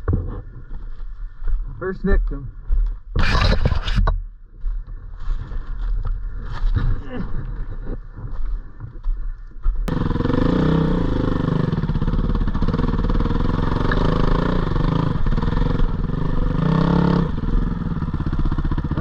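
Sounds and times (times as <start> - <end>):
dirt bike engine revving: 9.9 - 19.0.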